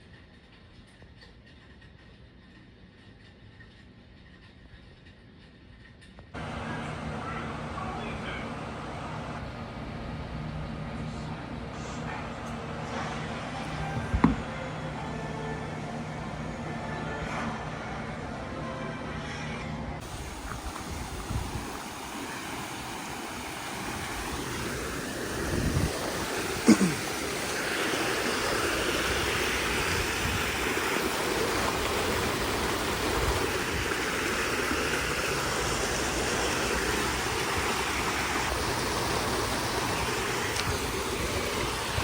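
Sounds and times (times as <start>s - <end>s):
running water rushing: 6.4s - 11.6s, 20.0s - 42.0s.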